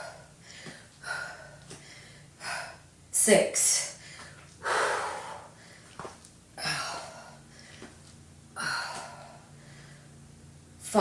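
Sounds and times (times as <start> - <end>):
woman exhaling forcefully: 4.6 - 5.5.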